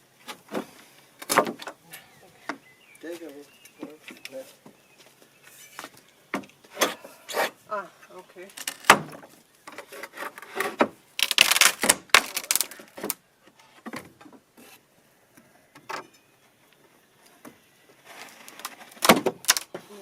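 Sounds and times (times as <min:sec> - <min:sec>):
wooden boards knocking and scraping: 0:00.3 - 0:01.8, 0:08.6 - 0:13.2, 0:18.2 - 0:19.8.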